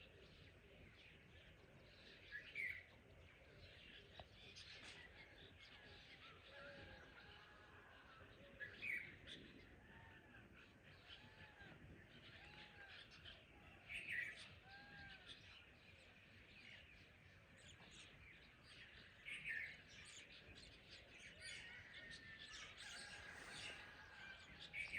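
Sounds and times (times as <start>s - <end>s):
birds calling: 22.6s - 24.9s.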